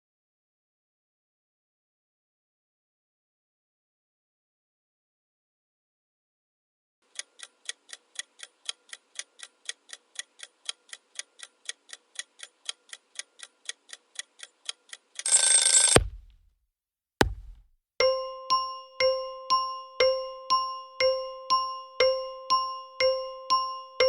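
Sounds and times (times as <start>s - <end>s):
clock ticking: 16.0s - 16.3s
thump: 16.0s - 16.4s, 17.2s - 17.6s.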